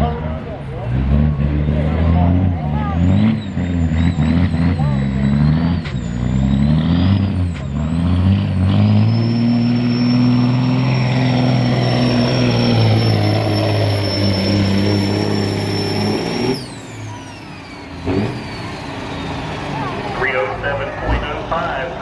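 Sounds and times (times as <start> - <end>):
diesel truck engine under load: 0.0 - 22.0
turbo whistle: 8.9 - 16.7.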